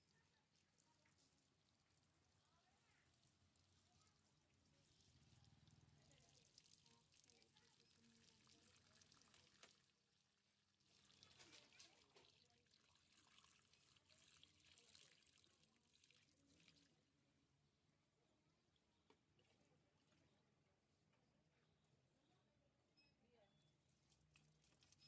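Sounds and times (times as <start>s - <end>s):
water pouring and trickling: 0.0s - 17.2s, 24.0s - 25.0s.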